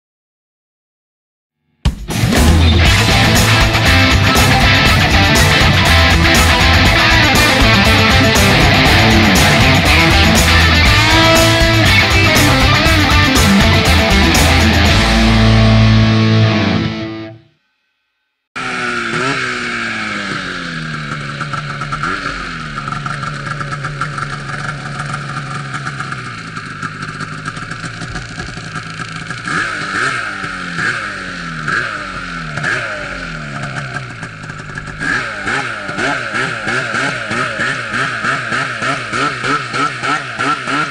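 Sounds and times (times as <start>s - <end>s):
guitar music: 1.9s - 17.6s
snowmobile engine revving: 2.1s - 17.2s, 18.6s - 40.9s.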